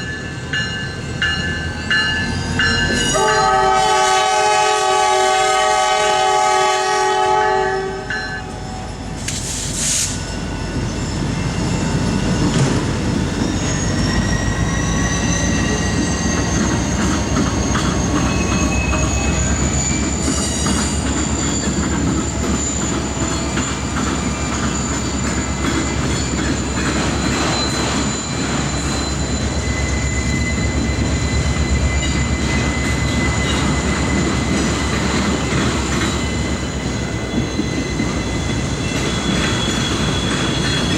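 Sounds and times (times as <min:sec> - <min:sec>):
high wheel squeal: 0:00.0 - 0:04.1, 0:07.7 - 0:40.9
train rumbling past: 0:00.0 - 0:40.9
locomotive horn: 0:03.1 - 0:08.6
wheel clatter over rail joints: 0:10.8 - 0:14.1.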